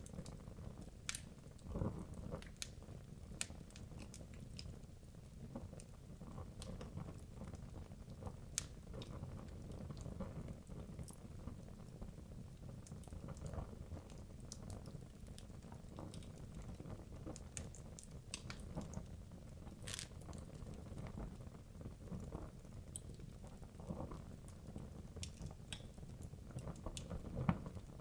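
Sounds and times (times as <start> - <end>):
logs crackling and popping: 0.0 - 28.0
wood fire burning: 0.0 - 28.0.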